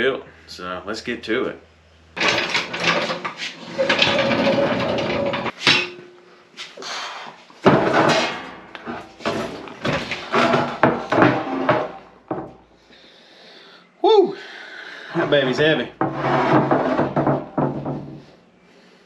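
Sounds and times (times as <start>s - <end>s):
heavy metal part clanking and scraping: 2.2s - 6.1s, 7.6s - 12.6s, 15.1s - 18.3s.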